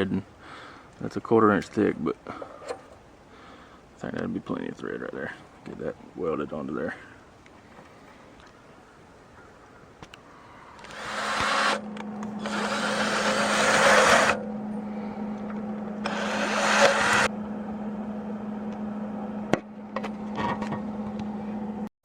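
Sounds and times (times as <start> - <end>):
welder hum: 10.6 - 21.9.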